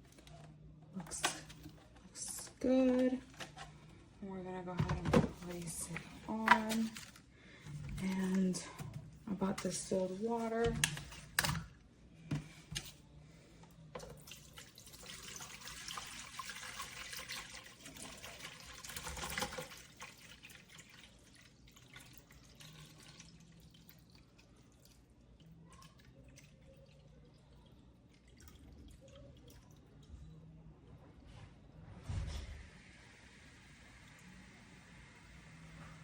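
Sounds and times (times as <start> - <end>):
water pouring into a tank: 14.0 - 30.0.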